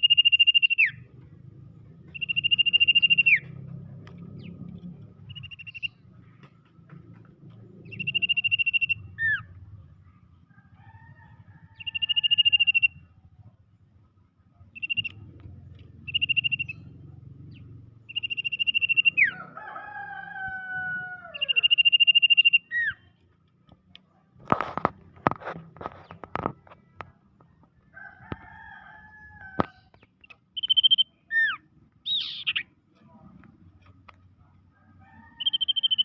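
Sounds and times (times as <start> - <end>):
bird buzzy trilled calls: 0.0 - 1.1, 2.0 - 3.6, 7.8 - 9.6, 14.7 - 15.3, 15.9 - 19.4, 21.4 - 23.1, 30.2 - 32.8, 35.4 - 36.0.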